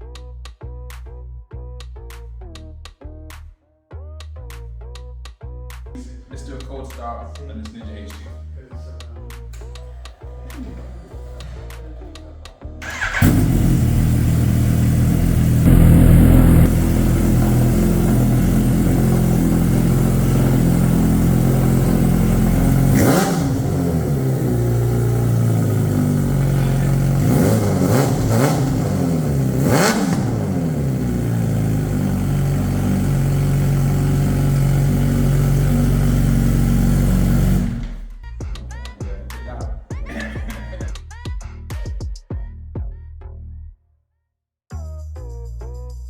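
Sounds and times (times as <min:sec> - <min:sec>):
motorcycle engine idling: 0:07.8 - 0:39.1
motorcycle throttle blips: 0:08.9 - 0:38.8.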